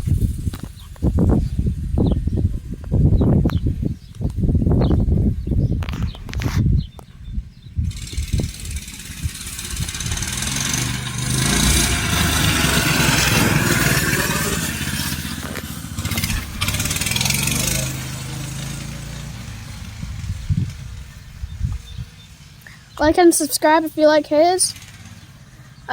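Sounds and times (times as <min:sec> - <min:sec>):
small engine under throttle: 0:07.5 - 0:23.0, 0:24.0 - 0:25.9.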